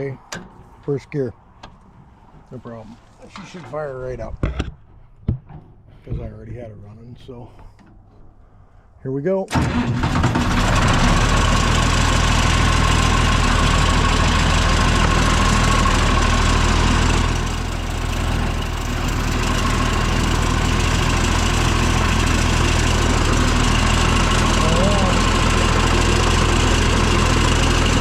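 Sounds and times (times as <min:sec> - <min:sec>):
tractor engine running: 0:09.5 - 0:28.0.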